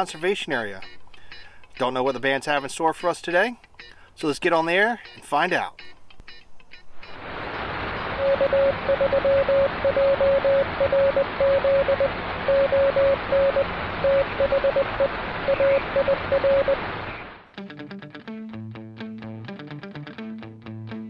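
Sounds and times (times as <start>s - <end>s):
radio static hiss: 7.1s - 17.4s
morse code tone pulses: 7.9s - 17.3s.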